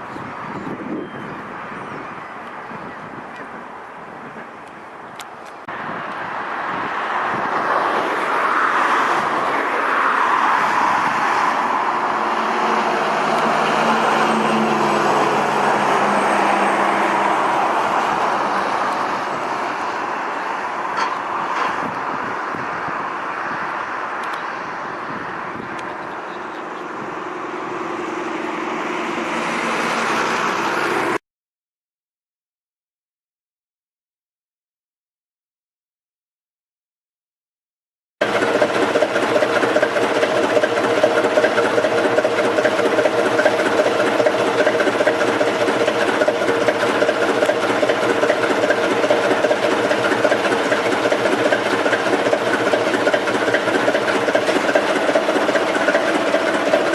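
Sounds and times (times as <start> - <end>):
train wheels on rails: 7.4 - 22.4, 38.2 - 56.9.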